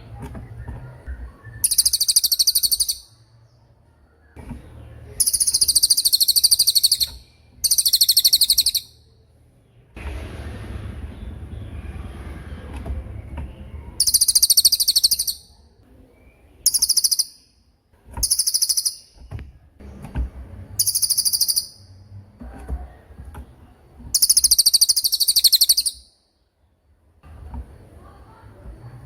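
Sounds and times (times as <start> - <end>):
bird trilling high notes: 1.2 - 3.2, 5.2 - 9.0, 14.0 - 15.5, 20.8 - 21.9.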